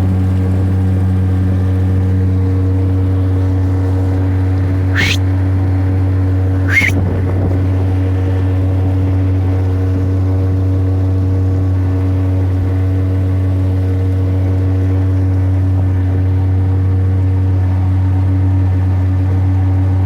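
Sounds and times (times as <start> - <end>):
engine droning steadily: 0.0 - 20.0
brief rising chirp: 5.0 - 5.2, 6.7 - 7.0.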